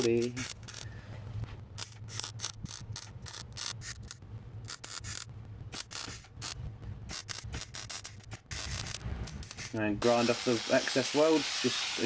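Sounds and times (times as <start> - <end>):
low electrical hum: 0.0 - 12.0
welding crackling hiss: 7.2 - 12.0.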